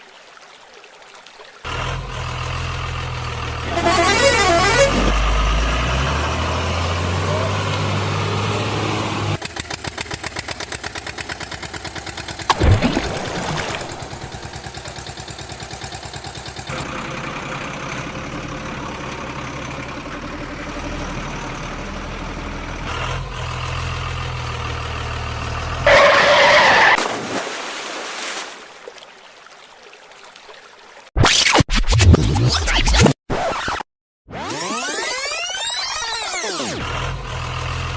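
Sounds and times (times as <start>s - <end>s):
truck engine chugging: 9.3s - 12.5s, 13.9s - 25.9s.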